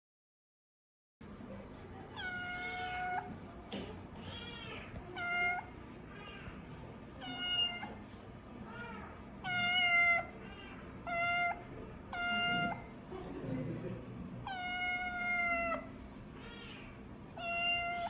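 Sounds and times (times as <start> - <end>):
kitten meowing: 2.2 - 3.3, 4.2 - 6.6, 7.2 - 8.0, 8.7 - 12.9, 14.5 - 18.0.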